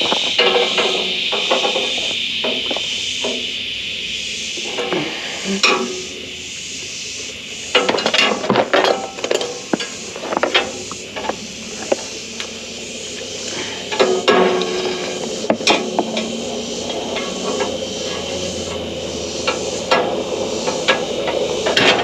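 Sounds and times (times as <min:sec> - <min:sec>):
metal clinking and clanking: 0:00.0 - 0:03.5, 0:07.7 - 0:12.5
steady high hiss: 0:00.0 - 0:22.0.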